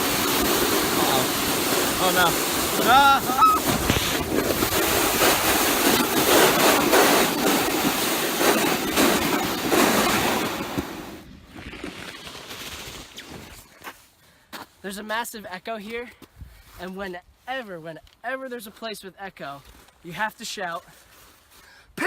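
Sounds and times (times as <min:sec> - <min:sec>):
wind on microphone: 0:00.0 - 0:11.8
sled scraping down icy snow: 0:00.0 - 0:13.8.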